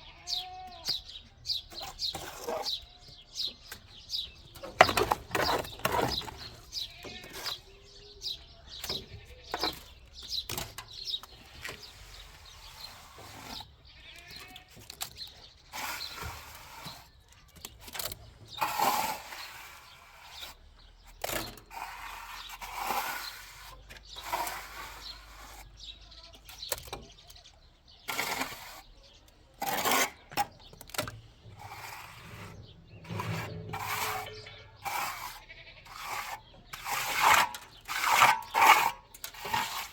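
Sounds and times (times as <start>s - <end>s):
livestock bleating: 0.0s - 1.0s, 13.9s - 14.7s, 34.3s - 36.0s
sharp knocks and scrapes: 1.7s - 27.3s, 28.0s - 39.9s.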